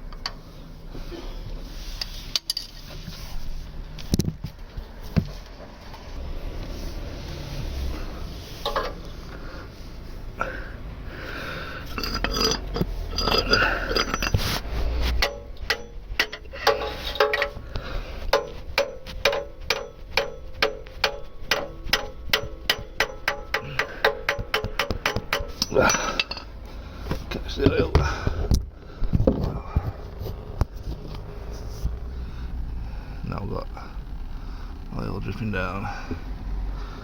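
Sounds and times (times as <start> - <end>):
tool scraping against metal: 7.4 - 9.1, 11.8 - 28.0
sharp metallic hammer taps: 18.3 - 25.8.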